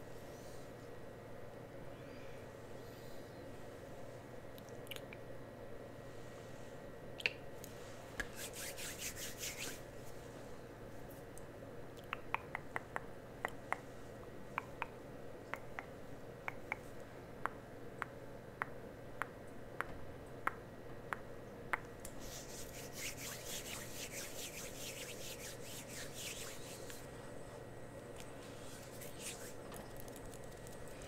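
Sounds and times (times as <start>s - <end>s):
scratchy rubbing strokes: 7.8s - 10.4s, 22.1s - 27.5s, 28.4s - 29.6s.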